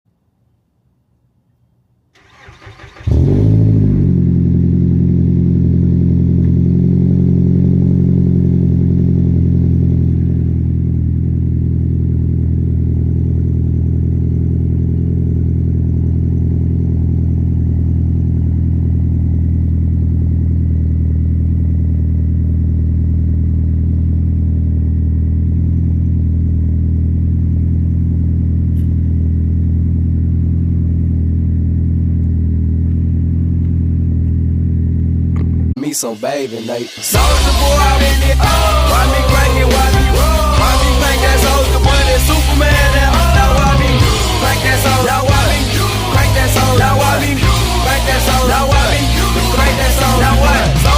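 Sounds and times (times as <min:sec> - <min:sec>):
car starter cranking: 0:02.2 - 0:03.6
car engine idling: 0:02.2 - 0:35.8, 0:37.1 - 0:50.9.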